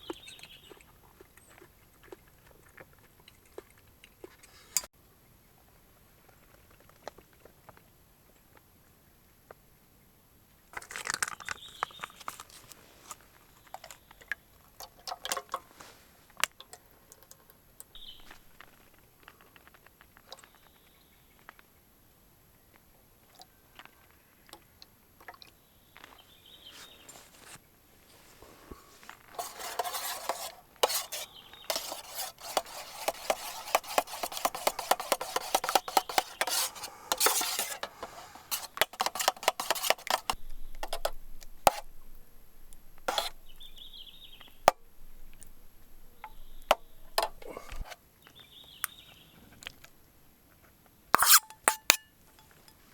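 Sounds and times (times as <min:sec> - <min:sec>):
stirring and scraping in metal pan: 0:28.2 - 0:42.0, 0:43.0 - 0:45.6, 0:51.2 - 0:52.8
metal utensil clinking on cookware: 0:29.4 - 0:40.4, 0:51.2 - 0:52.8.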